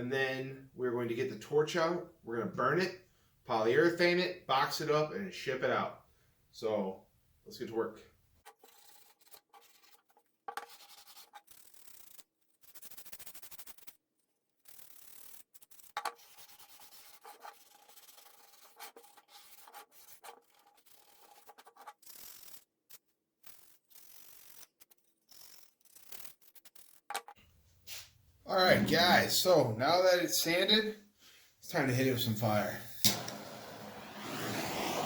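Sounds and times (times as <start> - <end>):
sanding wood: 33.5 - 35.0.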